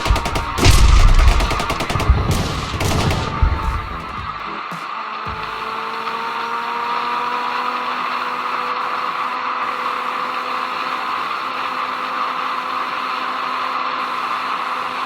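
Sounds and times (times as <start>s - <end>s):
motorcycle engine accelerating: 0.0s - 10.6s.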